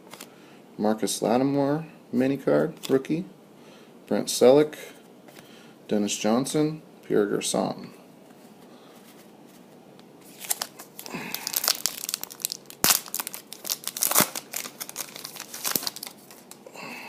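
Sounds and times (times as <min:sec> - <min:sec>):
foil wrapper tearing and crinkling: 0:10.3 - 0:16.7.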